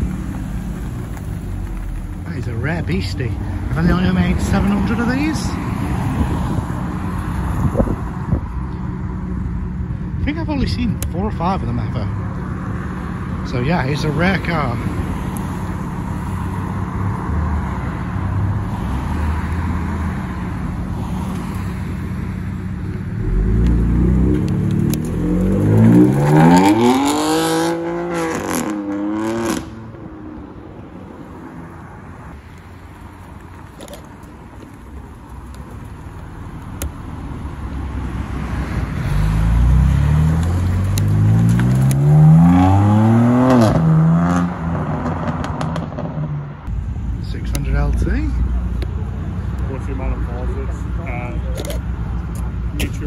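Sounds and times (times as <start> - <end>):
car engine idling and accelerating: 0.0 - 53.0
road noise: 0.0 - 53.0
second car accelerating hard: 23.1 - 29.9, 38.9 - 46.2.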